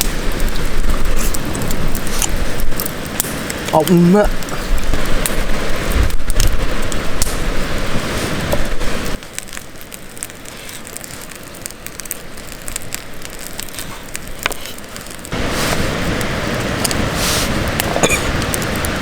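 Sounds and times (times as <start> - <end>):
campfire crackling and hissing: 0.0 - 19.0
sharp pops of burning wood: 0.0 - 19.0.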